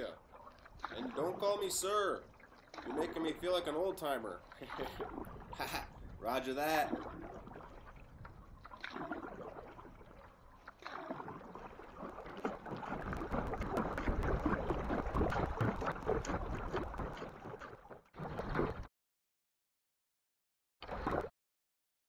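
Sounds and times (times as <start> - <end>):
paddles splashing in water: 0.0 - 18.9
wind on microphone: 4.8 - 10.0.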